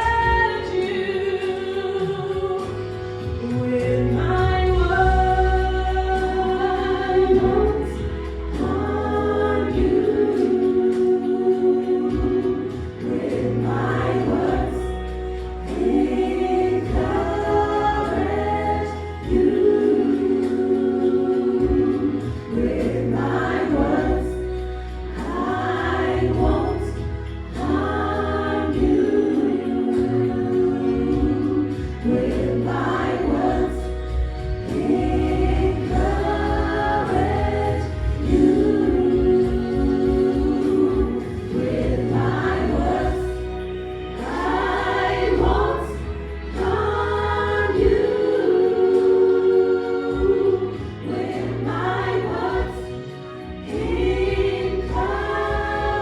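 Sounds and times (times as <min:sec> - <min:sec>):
bass accompaniment: 0:00.0 - 0:56.0
gospel choir singing: 0:00.0 - 0:56.0.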